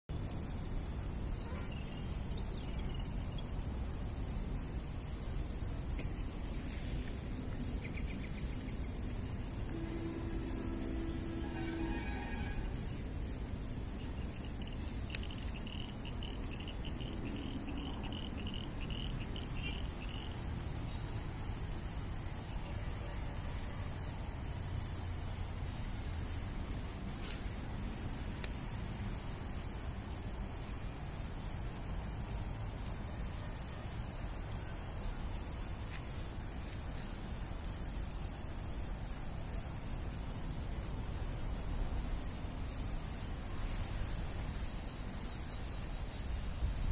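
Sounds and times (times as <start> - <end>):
continuous high insect trill: 0.1 - 46.9
insects chirping: 0.1 - 46.9
second insect chirping lower runs: 0.2 - 22.6.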